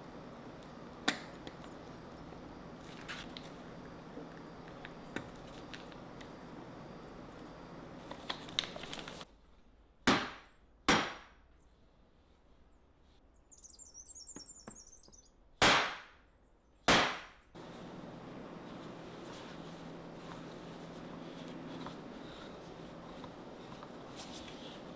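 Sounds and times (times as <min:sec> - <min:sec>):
faint high chirping: 0:13.3 - 0:15.4.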